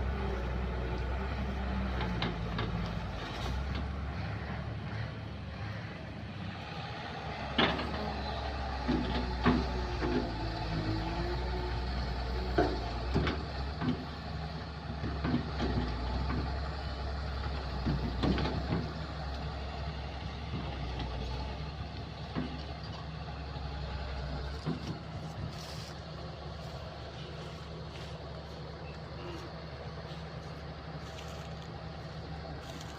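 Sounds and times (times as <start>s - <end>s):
excavator diesel engine running: 0.0s - 32.9s
knocks and clanks: 1.9s - 4.0s, 7.4s - 10.4s, 12.4s - 14.1s, 14.8s - 16.6s, 17.5s - 19.0s, 22.2s - 23.0s.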